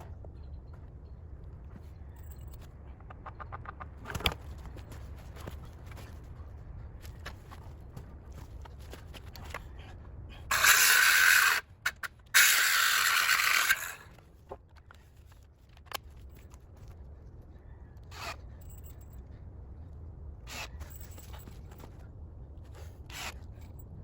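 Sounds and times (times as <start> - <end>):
faint clicks and rustles: 0.0 - 10.3.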